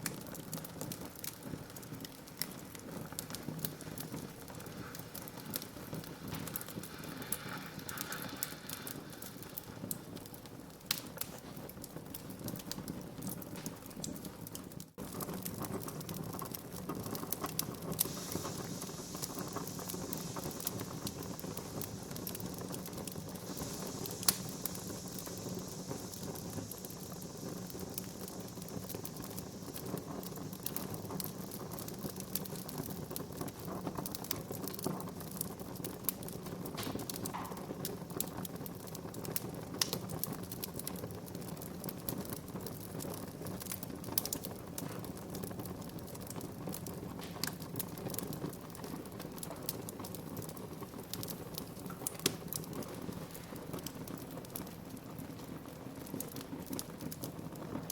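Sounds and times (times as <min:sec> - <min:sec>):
wood fire crackling: 0:00.0 - 0:57.9
loud pop from fire: 0:15.0 - 0:35.0, 0:35.8 - 0:40.9, 0:46.8 - 0:48.4, 0:50.4 - 0:54.2.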